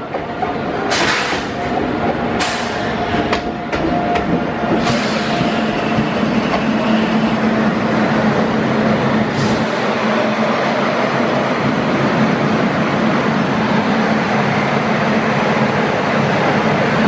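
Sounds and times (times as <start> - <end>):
rumble of wheels on rails: 0.0 - 17.0
sharp clicks of train: 0.9 - 1.7, 2.4 - 6.8.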